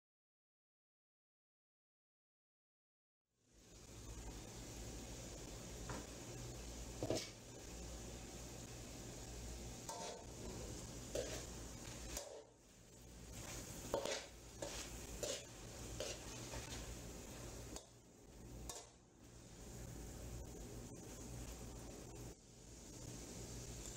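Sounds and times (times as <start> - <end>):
low sizzle: 3.4 - 23.9
metal spatula scraping pan: 7.0 - 7.4, 9.8 - 12.6, 13.3 - 17.9.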